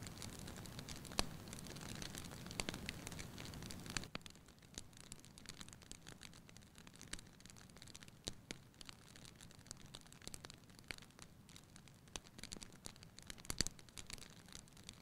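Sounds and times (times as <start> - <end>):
fire rumbling: 0.0 - 4.1
fire crackling and popping: 0.0 - 15.0.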